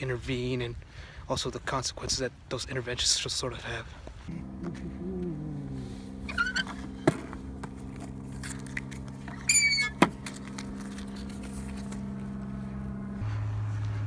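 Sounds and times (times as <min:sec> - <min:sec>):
steady low hum: 0:04.2 - 0:14.0.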